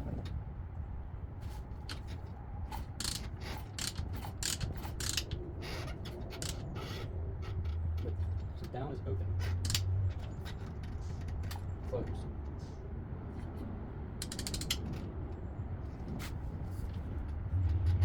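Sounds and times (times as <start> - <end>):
metallic clicking and ratcheting: 1.9 - 11.7, 14.2 - 15.1.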